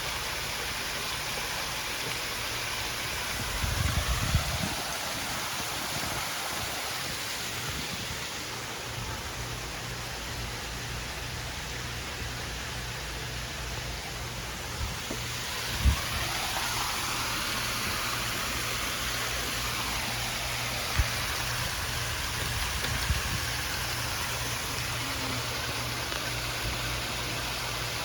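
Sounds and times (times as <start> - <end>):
ceiling fan humming: 0.0 - 28.0
rushing air: 3.3 - 8.7, 14.6 - 28.0.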